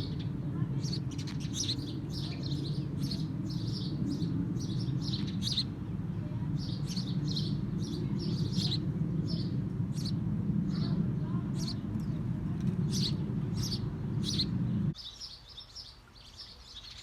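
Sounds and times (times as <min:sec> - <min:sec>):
steady low hum: 0:00.0 - 0:15.0
small birds chirping: 0:00.0 - 0:17.0.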